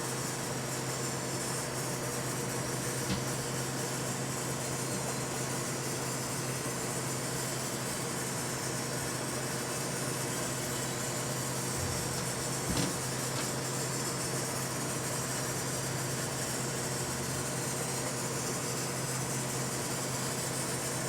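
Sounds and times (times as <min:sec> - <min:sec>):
microwave oven humming: 0:00.0 - 0:21.0.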